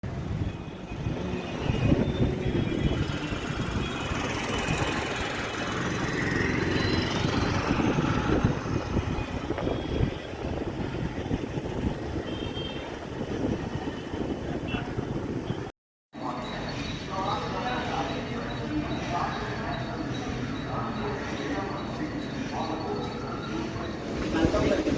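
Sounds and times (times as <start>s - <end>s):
metallic wheel squeals: 23.0s - 24.9s
train wheels rumbling on rails: 23.8s - 24.9s.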